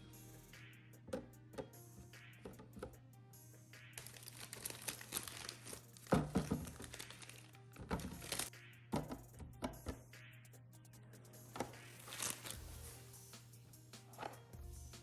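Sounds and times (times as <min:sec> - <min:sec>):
soft background music: 0:00.0 - 0:15.0
plastic packaging crinkling: 0:04.0 - 0:08.5, 0:11.9 - 0:13.0
containers knocking: 0:06.0 - 0:07.0, 0:08.9 - 0:10.0.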